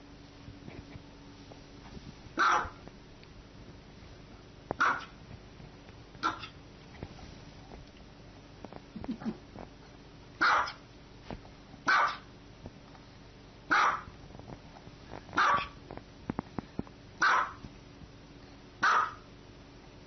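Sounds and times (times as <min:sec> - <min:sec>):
small dog barking: 0:02.4 - 0:02.8, 0:04.8 - 0:05.2, 0:06.2 - 0:06.6, 0:10.4 - 0:10.8, 0:11.8 - 0:12.3, 0:13.7 - 0:14.1, 0:15.4 - 0:15.8, 0:17.2 - 0:17.6, 0:18.8 - 0:19.2.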